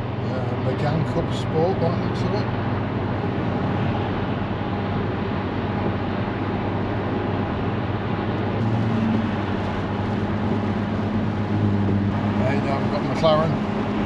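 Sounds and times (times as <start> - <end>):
car engine hum: 0.0 - 14.0
tyre noise on wet road: 8.6 - 14.0.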